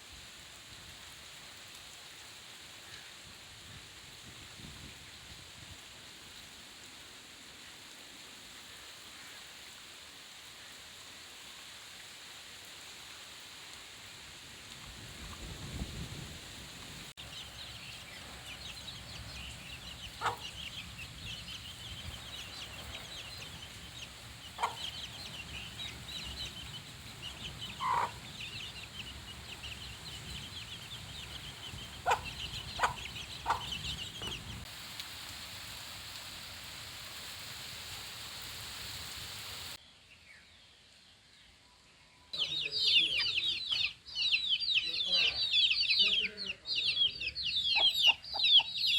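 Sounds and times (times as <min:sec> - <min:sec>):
rain hissing: 0:00.0 - 0:39.8
chicks peeping: 0:17.2 - 0:34.6, 0:42.4 - 0:48.9.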